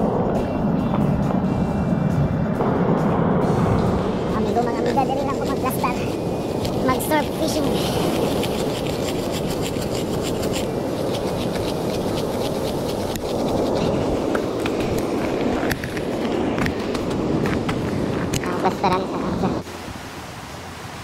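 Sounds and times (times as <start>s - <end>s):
wind: 0.0s - 21.0s
shell grit crunching and scraping: 4.8s - 18.5s.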